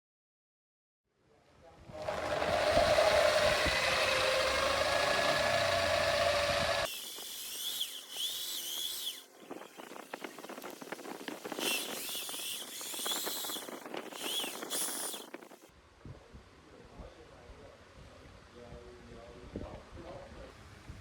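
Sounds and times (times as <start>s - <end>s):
power tool working steel: 1.9s - 9.3s, 11.6s - 15.6s
high squeals: 11.5s - 15.6s.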